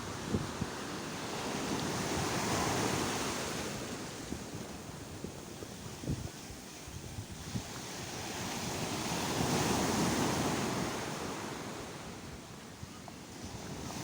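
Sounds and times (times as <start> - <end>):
wind buffeting microphone: 0.0 - 10.9
sea waves breaking on shore: 0.0 - 14.0.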